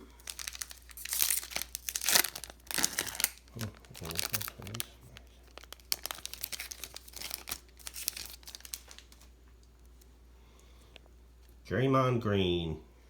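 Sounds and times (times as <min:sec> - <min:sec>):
wrapper crinkling and tearing: 0:00.0 - 0:10.1.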